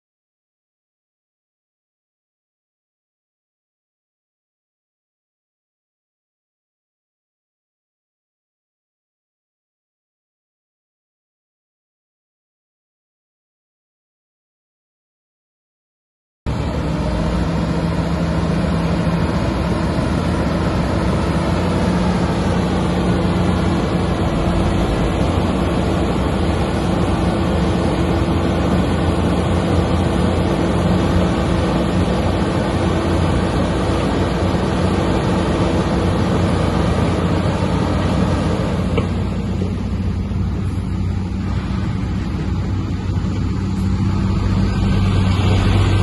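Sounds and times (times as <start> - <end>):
bulldozer diesel engine: 16.5 - 46.0.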